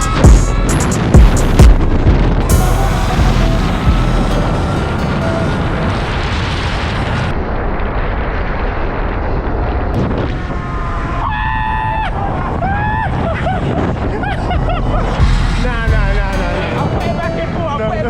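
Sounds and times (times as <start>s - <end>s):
wind rushing over microphone: 0.0s - 17.6s
rising and falling pitched tones: 2.4s - 7.4s.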